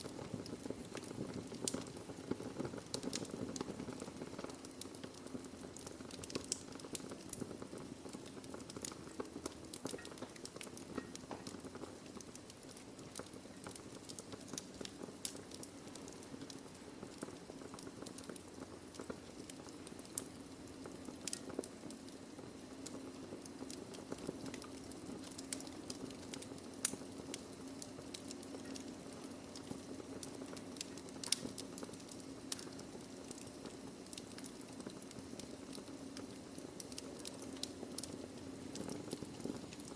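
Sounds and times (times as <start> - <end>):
burning logs crackling and popping: 0.0 - 39.9
wood fire hissing: 0.0 - 39.9.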